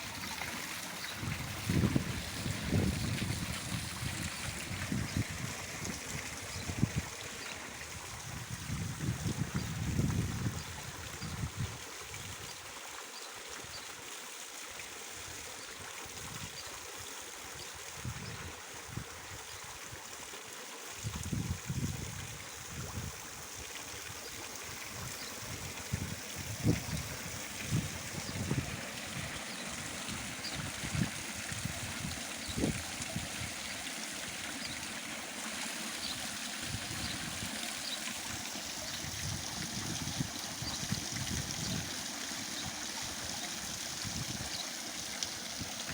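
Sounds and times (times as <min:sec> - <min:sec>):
water trickling over rocks: 0:00.0 - 0:45.9.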